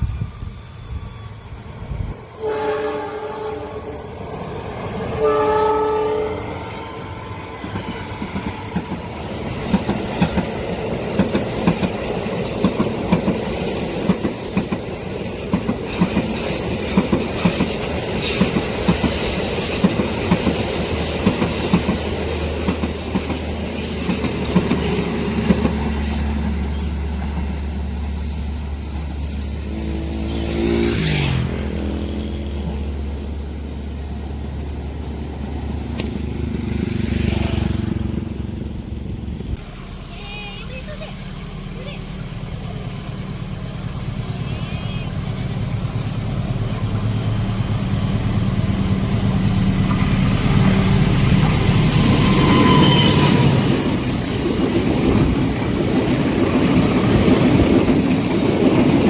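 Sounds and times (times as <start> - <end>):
high wheel squeal: 0.0 - 37.8, 41.5 - 58.1
train horn: 2.4 - 4.1, 5.1 - 6.9, 29.6 - 31.3, 52.0 - 54.0
train wheels clattering: 6.5 - 29.7, 45.7 - 59.0.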